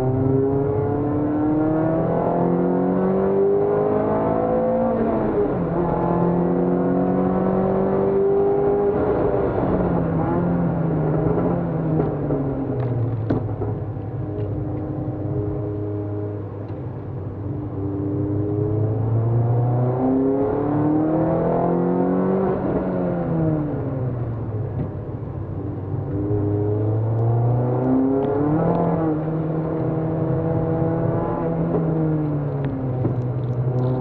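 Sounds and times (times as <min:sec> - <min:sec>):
car engine revving: 0:00.0 - 0:16.6, 0:25.8 - 0:34.0.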